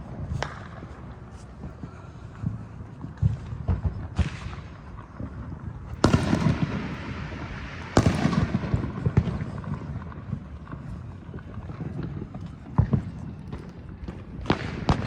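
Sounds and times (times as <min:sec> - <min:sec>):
rolling rumble and crackle: 0:00.0 - 0:15.0
small firework pop: 0:00.3 - 0:00.8
fireworks bangs: 0:02.4 - 0:15.0.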